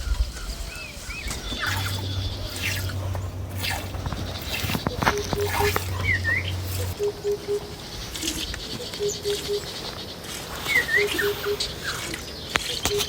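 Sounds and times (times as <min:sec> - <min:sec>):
higher dipping bird chirp: 0:01.0 - 0:13.0
low three-note bird call: 0:04.8 - 0:09.8.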